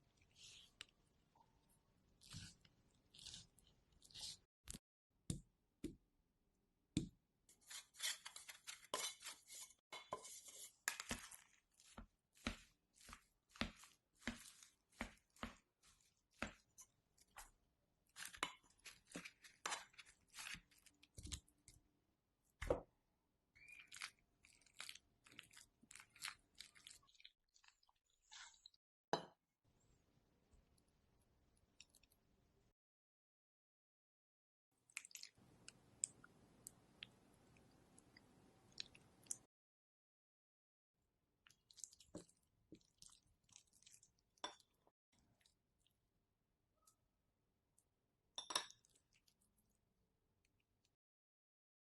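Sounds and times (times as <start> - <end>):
knife scraping and cutting food: 2.2 - 4.8, 7.5 - 17.5.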